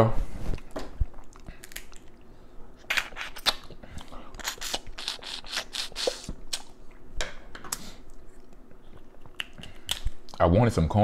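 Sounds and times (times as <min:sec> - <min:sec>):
crab shell cracking: 0:01.4 - 0:02.2.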